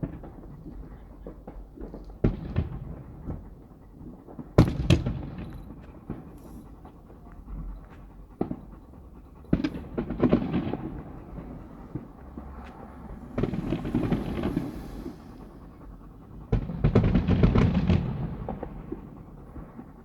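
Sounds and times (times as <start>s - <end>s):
fireworks bangs: 4.0s - 6.6s, 9.2s - 19.7s
fireworks crackling: 9.5s - 15.8s.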